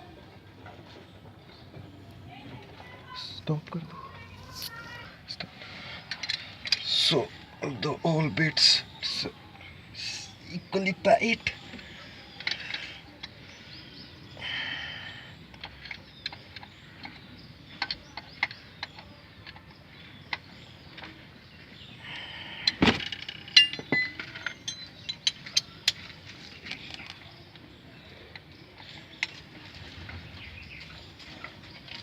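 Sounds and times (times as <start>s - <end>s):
metal tools clinking on bolts: 23.0s - 26.2s.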